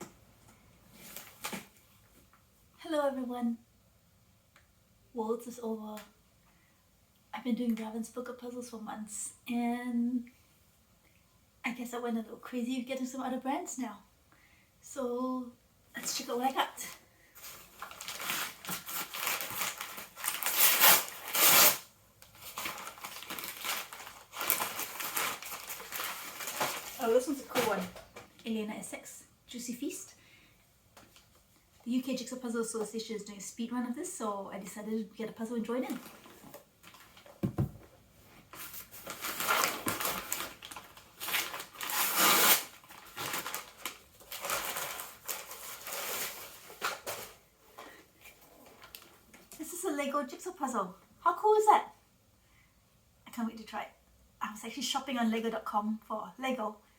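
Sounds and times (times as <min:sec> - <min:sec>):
packaging rustling and crinkling: 0:17.4 - 0:28.2, 0:35.9 - 0:37.8, 0:38.4 - 0:47.8
knock: 0:37.4 - 0:37.8.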